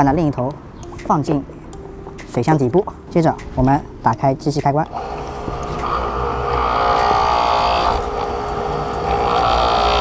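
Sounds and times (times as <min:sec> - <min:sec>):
pressure washer motor and pump: 0:04.9 - 0:10.0.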